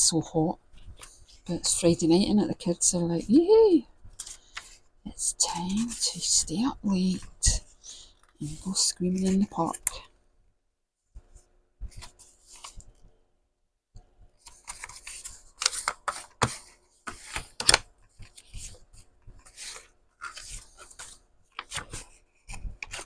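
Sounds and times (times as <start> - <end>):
paper rustling and scraping: 5.4 - 6.3, 11.3 - 12.9, 14.4 - 23.0.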